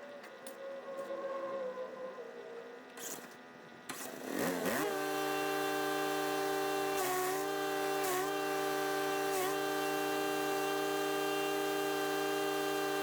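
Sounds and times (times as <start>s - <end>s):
wood chipper engine revving: 3.9s - 13.0s.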